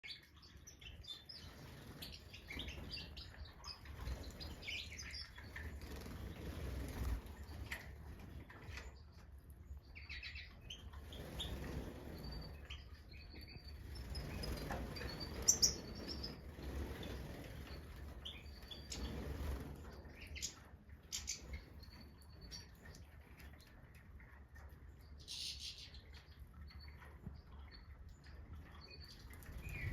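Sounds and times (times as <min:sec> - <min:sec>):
finches chirping: 0:00.0 - 0:07.8, 0:09.8 - 0:23.1, 0:25.2 - 0:29.9
wings fluttering: 0:01.4 - 0:08.9, 0:10.9 - 0:12.8, 0:13.4 - 0:21.6.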